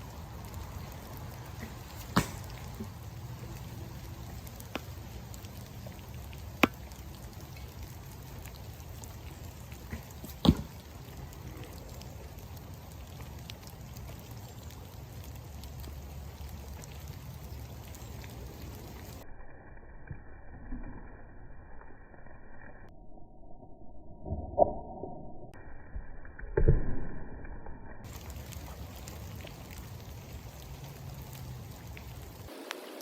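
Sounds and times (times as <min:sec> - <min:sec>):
steady rain falling: 0:00.0 - 0:19.3, 0:28.0 - 0:33.0.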